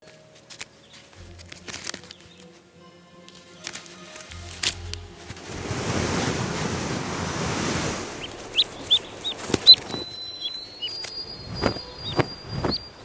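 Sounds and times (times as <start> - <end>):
steady rushing noise: 5.3 - 13.0
ducklings peeping: 8.1 - 13.0.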